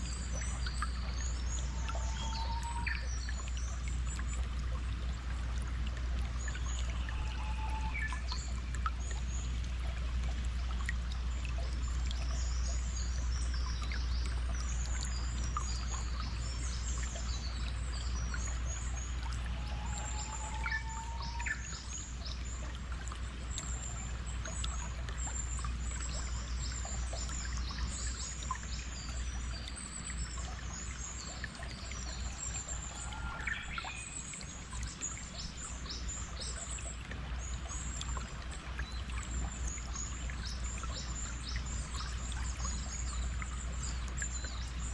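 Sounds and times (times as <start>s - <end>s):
songbirds chirping: 0.0s - 44.9s
trickling stream: 0.0s - 44.9s
lower whistled bird calls: 1.3s - 3.4s, 6.9s - 8.5s, 18.8s - 21.9s.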